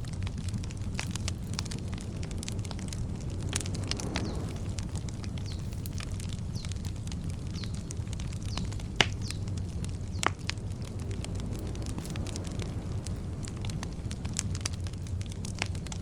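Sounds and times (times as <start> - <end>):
campfire crackling: 0.0 - 16.0
sharp fire pops: 0.0 - 16.0
steady low rumble: 0.0 - 16.0
birds chirping faintly: 1.2 - 14.1.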